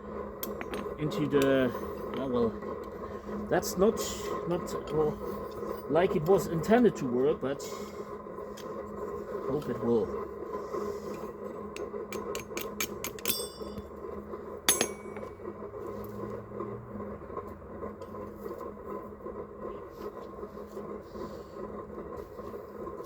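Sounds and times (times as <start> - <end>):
background hum: 0.0 - 23.0
hammer tapping metal buckle: 12.1 - 13.9, 14.7 - 15.3.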